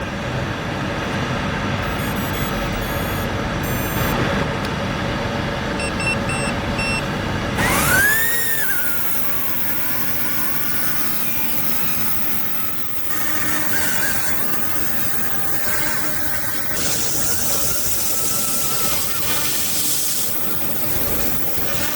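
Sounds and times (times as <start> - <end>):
short high electronic beeps: 1.8 - 4.2
toy helicopter rotors whirring: 7.6 - 21.9.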